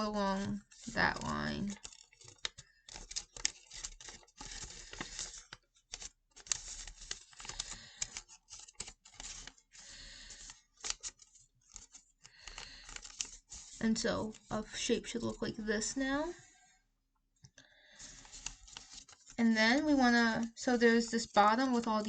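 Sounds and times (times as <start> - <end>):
paper rustling and crinkling: 0.0 - 14.8, 17.9 - 22.0
paper scraping along a fold: 0.1 - 14.5.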